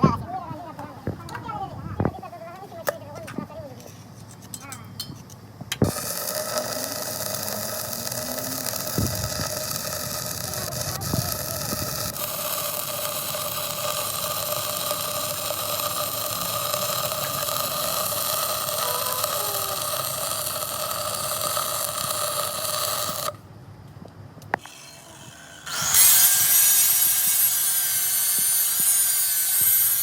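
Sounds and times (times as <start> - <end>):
workshop machine running: 5.7 - 23.4, 24.5 - 30.0.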